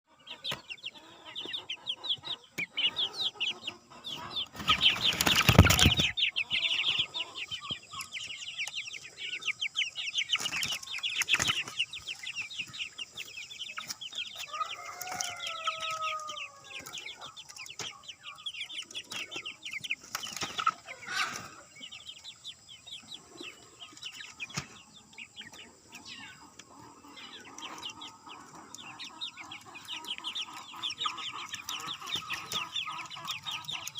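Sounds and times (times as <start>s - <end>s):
chicks cheeping: 0.0s - 33.9s
adult chicken call: 14.4s - 17.4s, 20.7s - 21.7s.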